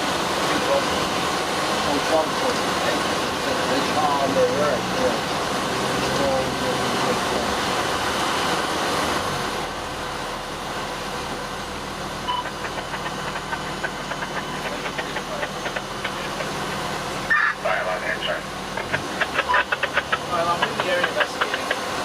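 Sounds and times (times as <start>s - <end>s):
road and cab noise: 0.0s - 22.0s
truck engine running: 0.0s - 22.0s
short beep: 12.2s - 12.6s.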